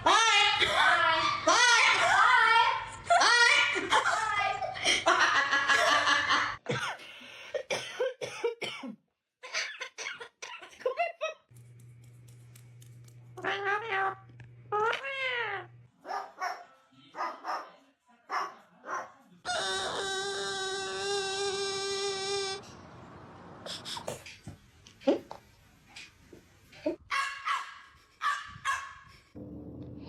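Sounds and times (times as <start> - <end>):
parrots calling: 19.5 - 22.6.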